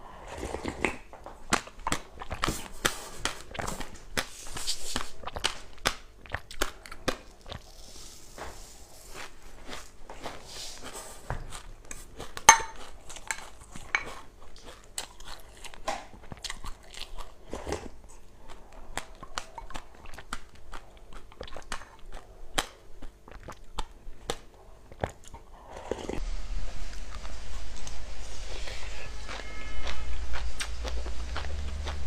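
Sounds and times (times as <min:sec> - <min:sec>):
person chewing crunchy seeds: 0:00.1 - 0:26.2, 0:28.6 - 0:32.0
steady noise: 0:26.2 - 0:32.0.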